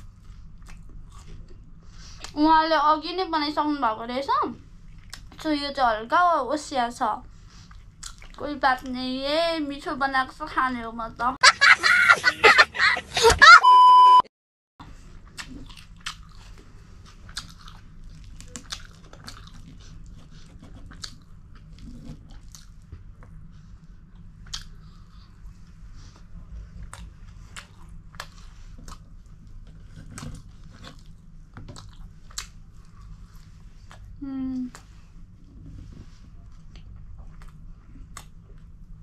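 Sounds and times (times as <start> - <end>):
steady low hum: 0.0 - 14.2, 14.8 - 39.0
person chewing crunchy food: 0.2 - 2.3, 7.6 - 8.4, 15.0 - 23.5, 24.1 - 25.5, 26.7 - 34.9.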